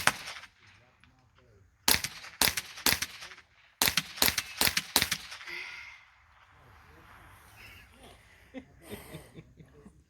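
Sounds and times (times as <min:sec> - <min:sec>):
gunshots: 0:00.0 - 0:00.7, 0:01.8 - 0:05.5.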